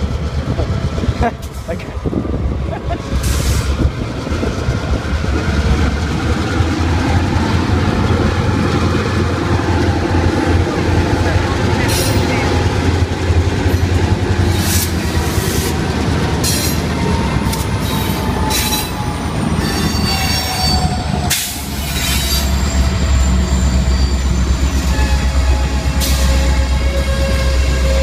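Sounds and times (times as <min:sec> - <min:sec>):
freight cars rumbling: 0:00.0 - 0:28.0
steel wheels squealing: 0:17.4 - 0:28.0.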